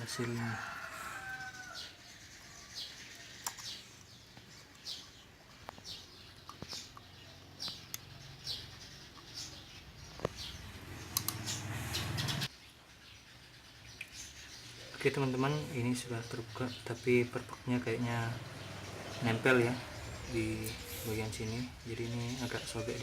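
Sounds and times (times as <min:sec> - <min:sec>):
bird chirping: 0:00.0 - 0:23.0
light clicks: 0:11.1 - 0:11.5.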